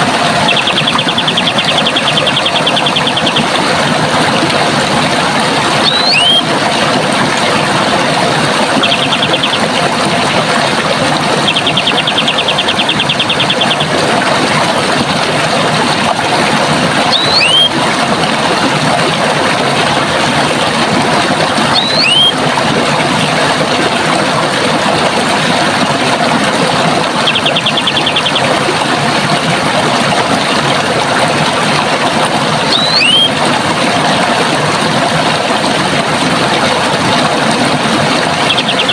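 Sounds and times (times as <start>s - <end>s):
running water: 0.0s - 38.9s
rapid high bird trill: 0.4s - 3.5s, 5.8s - 6.5s, 11.4s - 13.9s, 17.1s - 17.8s, 21.7s - 22.4s, 27.2s - 28.5s, 32.7s - 33.4s
bird whistled call: 0.5s - 3.4s, 5.8s - 6.5s, 17.1s - 17.7s, 21.7s - 22.4s, 32.7s - 33.3s.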